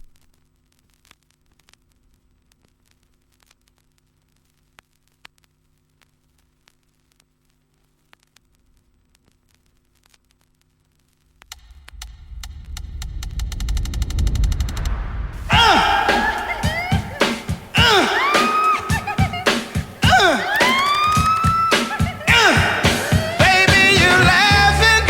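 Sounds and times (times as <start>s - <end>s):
soft clicks and crackle: 0.0s - 14.0s.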